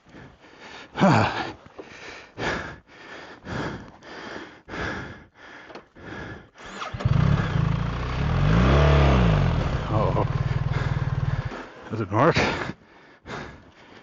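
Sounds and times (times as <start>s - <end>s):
man breathing hard: 0.0s - 7.7s, 10.2s - 11.7s, 12.4s - 14.0s
motorcycle engine starting and running: 6.6s - 12.4s.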